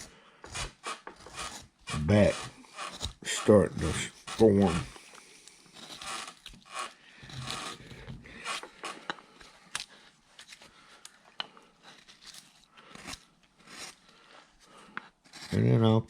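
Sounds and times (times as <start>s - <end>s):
gouge cutting wood: 0.0s - 5.1s, 5.7s - 9.1s, 12.8s - 15.7s.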